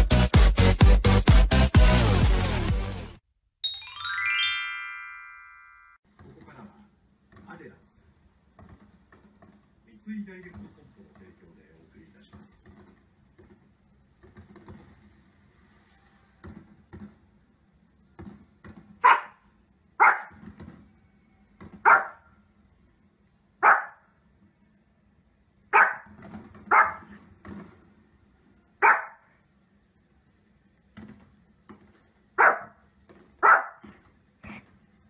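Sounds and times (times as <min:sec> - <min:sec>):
small dog barking: 0:19.0 - 0:19.4, 0:20.0 - 0:20.4, 0:21.8 - 0:22.3, 0:23.6 - 0:24.1, 0:25.7 - 0:26.1, 0:26.7 - 0:27.1, 0:28.8 - 0:29.3, 0:32.4 - 0:32.8, 0:33.4 - 0:33.9.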